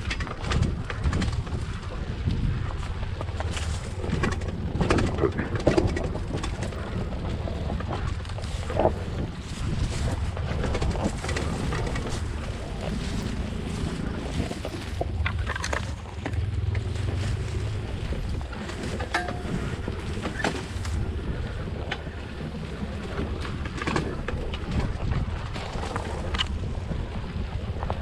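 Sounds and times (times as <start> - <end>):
dirt bike engine rumble: 0.0 - 28.0
wind buffeting microphone: 0.0 - 28.0
knocks and clicks: 3.0 - 21.0.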